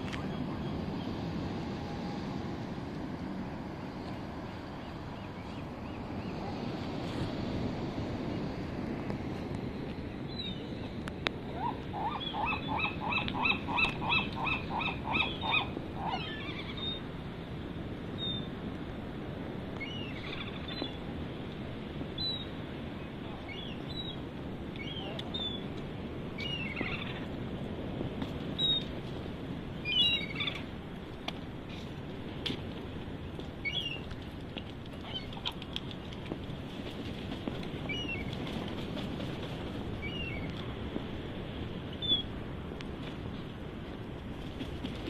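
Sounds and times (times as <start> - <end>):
surf rushing: 0.0 - 45.0
wind: 0.0 - 45.0
birds calling: 11.5 - 17.0, 26.4 - 27.3.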